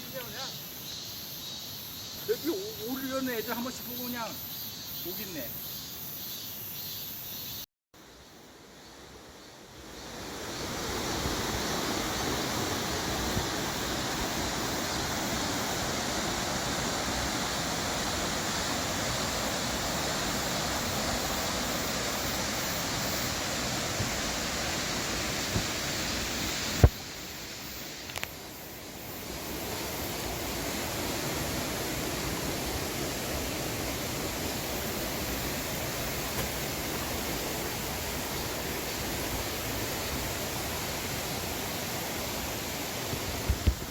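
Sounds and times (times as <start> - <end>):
stream rushing over rocks: 9.2 - 43.9.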